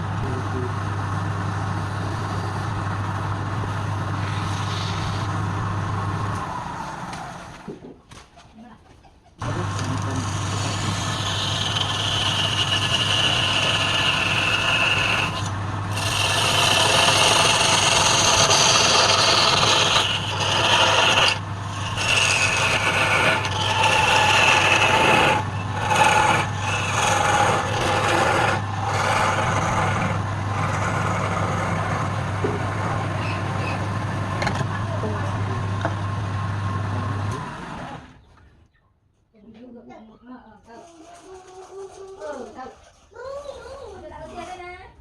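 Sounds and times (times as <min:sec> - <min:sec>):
wood lathe humming: 0:00.0 - 0:07.7, 0:09.4 - 0:38.1
tool scraping spinning wood: 0:00.0 - 0:08.0, 0:09.4 - 0:36.2, 0:40.6 - 0:44.7.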